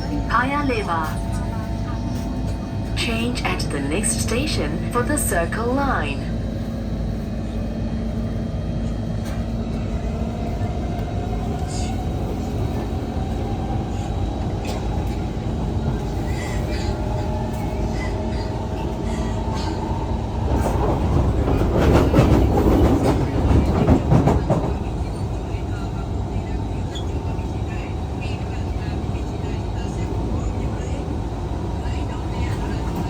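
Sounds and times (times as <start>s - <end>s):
metro train rumbling: 0.0s - 33.0s
train rattling and clatter: 0.0s - 33.0s.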